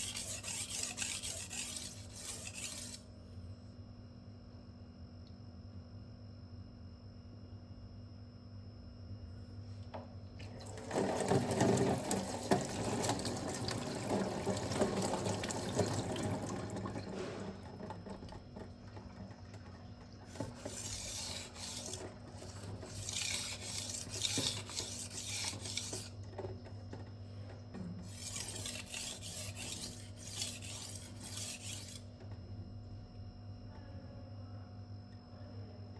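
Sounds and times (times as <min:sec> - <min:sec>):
knife scraping on sharpening stone: 0:00.0 - 0:03.0, 0:20.6 - 0:22.0, 0:22.9 - 0:26.1, 0:28.0 - 0:32.0.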